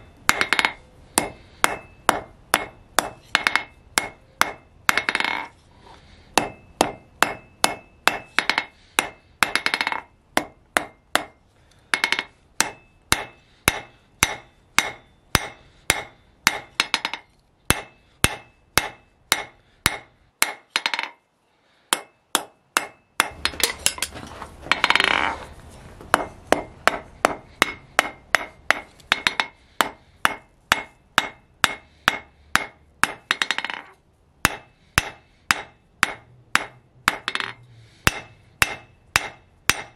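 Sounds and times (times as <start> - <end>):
hammer striking steel on anvil: 0.0 - 5.5, 6.4 - 21.2, 21.9 - 24.1, 26.1 - 39.9.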